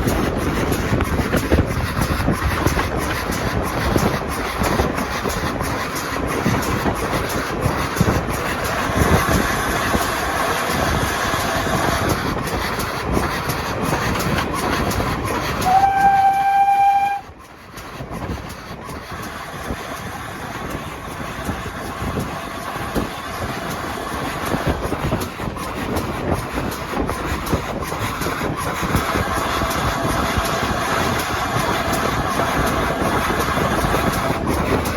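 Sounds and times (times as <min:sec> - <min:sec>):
train wheels knocking on track: 0:00.0 - 0:34.9
train warning horn blast: 0:15.6 - 0:17.3.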